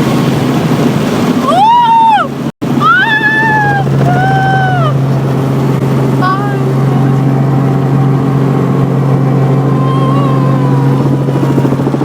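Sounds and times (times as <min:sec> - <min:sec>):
helicopter cabin drone: 0:00.0 - 0:12.0.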